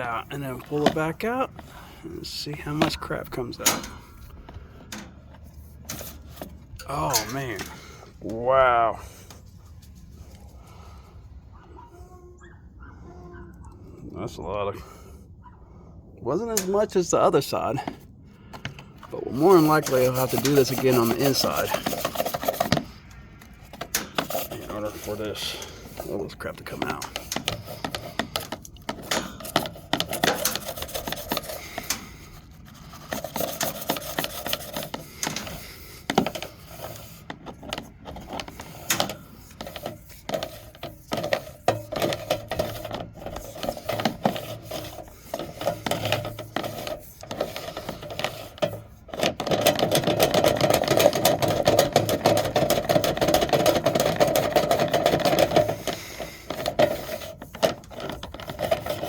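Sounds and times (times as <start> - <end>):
rod scraping inside duct: 0.0 - 10.8, 19.1 - 59.0.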